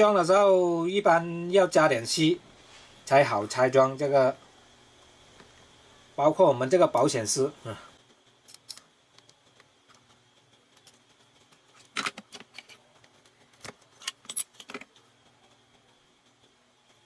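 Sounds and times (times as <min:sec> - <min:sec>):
faint steady hum: 0:00.0 - 0:17.0
metal tools clicking on circuit board: 0:08.5 - 0:09.4.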